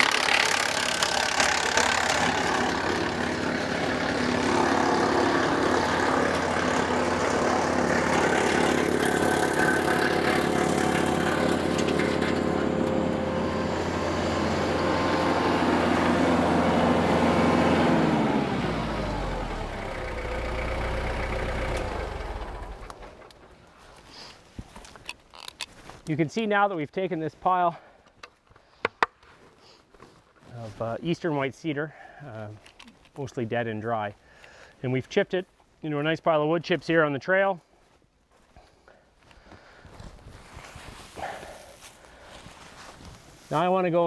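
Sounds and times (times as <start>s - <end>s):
low hum: 0.0s - 17.3s
tractor engine running: 0.0s - 23.6s
wood chipper grinding branches: 0.0s - 24.3s, 40.6s - 44.0s.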